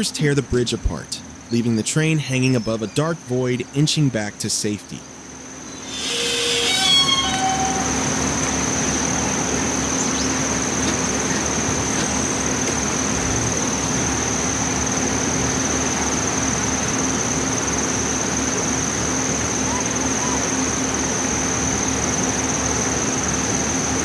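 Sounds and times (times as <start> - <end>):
constant high whine: 0.0 - 24.0
moving train running noise: 5.2 - 24.0
falling run of tones: 5.6 - 13.1.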